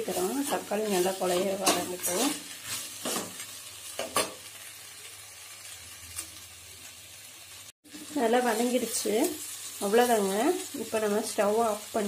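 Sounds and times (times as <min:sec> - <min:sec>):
spoon scraping pan: 0:00.0 - 0:04.4
vegetables sizzling in oil: 0:00.0 - 0:12.0.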